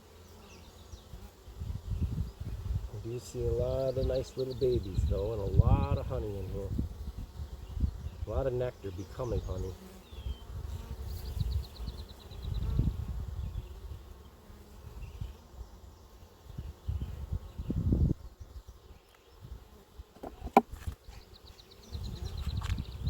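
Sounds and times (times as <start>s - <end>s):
honeybees buzzing: 0.0s - 23.0s.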